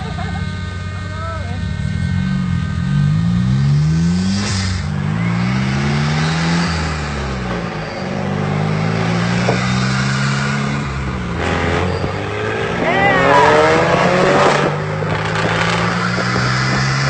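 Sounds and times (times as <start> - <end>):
car engine accelerating through gears: 1.7 - 17.0.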